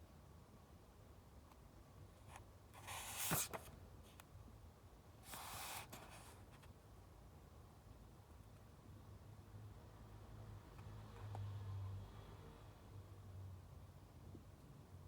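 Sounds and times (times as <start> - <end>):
book pages turning: 2.8 - 3.7.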